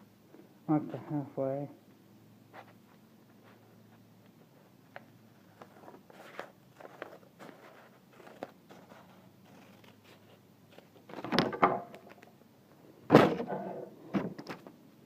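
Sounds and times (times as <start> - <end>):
paper rustling and creasing: 2.6 - 12.2.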